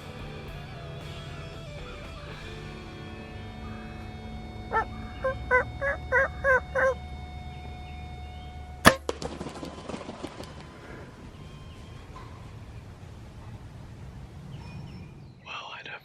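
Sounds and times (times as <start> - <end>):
turkey yelping: 4.6 - 9.0
bow shot crack: 8.9 - 10.2.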